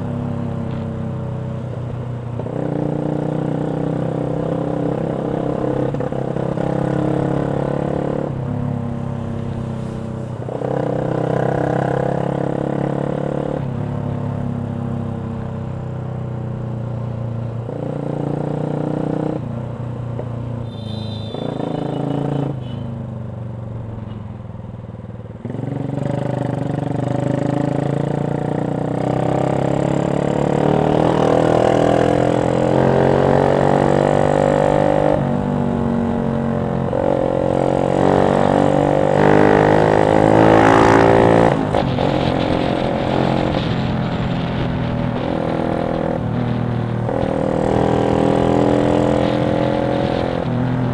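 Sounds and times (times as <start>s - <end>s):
motorcycle exhaust note: 20.6s - 23.0s, 35.0s - 50.9s.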